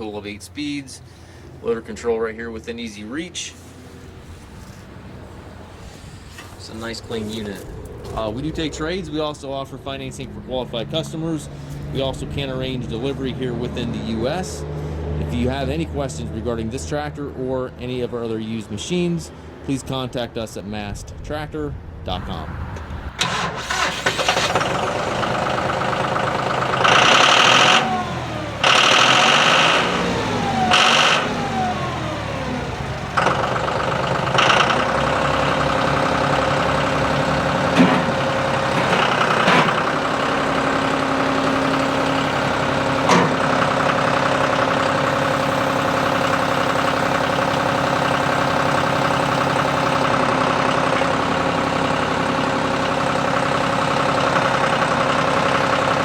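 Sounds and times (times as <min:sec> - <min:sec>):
diesel tractor engine running: 0:00.0 - 0:17.1, 0:22.1 - 0:56.0
short engine knocks: 0:33.2 - 0:45.1.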